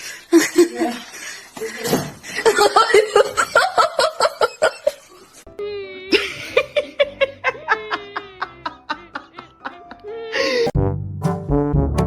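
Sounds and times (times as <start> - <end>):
person laughing: 6.1 - 10.7.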